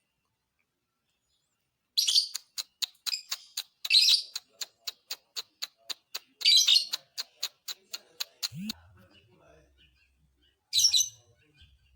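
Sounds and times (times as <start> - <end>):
bird harsh chattering: 2.0 - 8.8
bird sharp ticking notes: 2.3 - 8.8.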